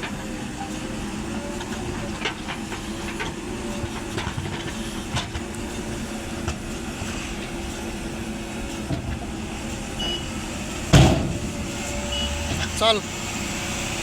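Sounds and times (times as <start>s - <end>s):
diesel engine running: 0.0s - 14.0s
loud thump: 10.9s - 11.6s.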